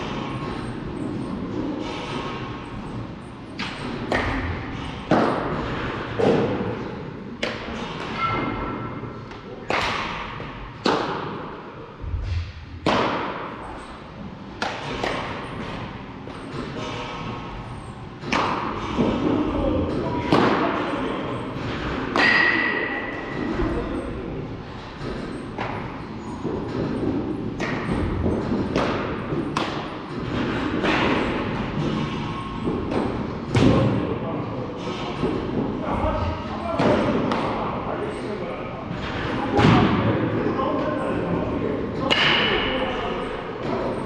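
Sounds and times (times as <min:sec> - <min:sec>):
baseball struck with sharp crack: 0:03.6 - 0:04.5.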